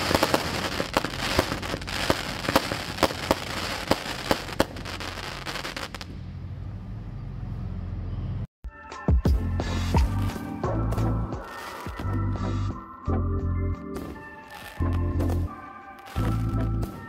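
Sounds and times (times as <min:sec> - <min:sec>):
fireworks firing and bursting: 0:00.0 - 0:06.1, 0:10.0 - 0:12.8, 0:13.9 - 0:17.0.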